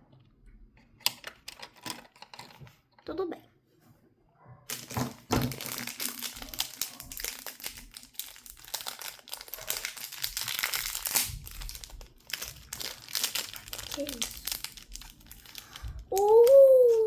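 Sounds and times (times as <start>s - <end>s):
plastic bag crinkling: 4.7s - 17.0s.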